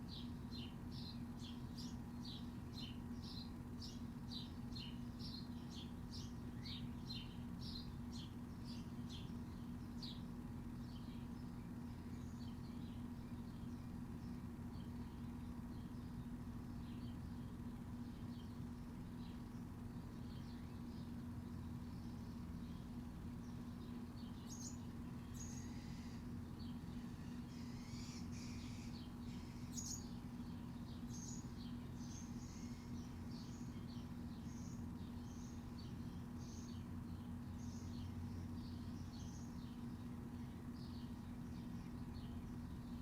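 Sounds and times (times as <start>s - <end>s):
small birds chirping: 0.0s - 43.0s
steady low hum: 0.0s - 43.0s.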